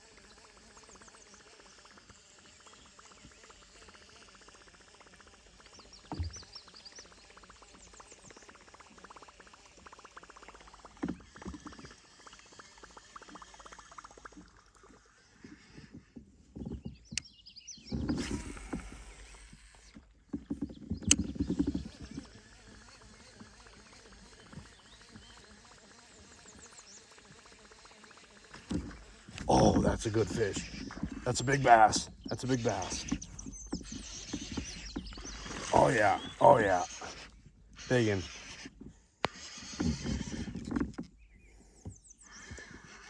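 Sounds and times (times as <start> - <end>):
fishing reel being cranked: 7.0 - 16.2, 18.1 - 20.0, 21.0 - 41.1.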